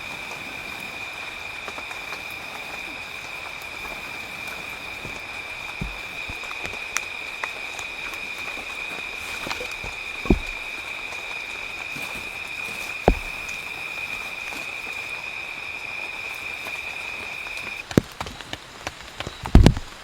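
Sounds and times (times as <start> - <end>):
forest noise: 0.0 - 20.0
dull thuds: 5.0 - 7.0, 9.3 - 14.3.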